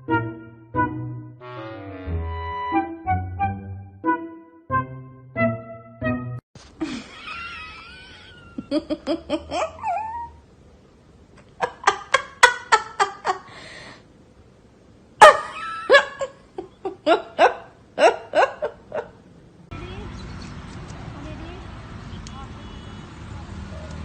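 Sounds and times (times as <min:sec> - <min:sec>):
people laughing: 0:06.8 - 0:10.3, 0:11.6 - 0:13.5, 0:15.2 - 0:19.1
high wavering cry: 0:09.5 - 0:10.4.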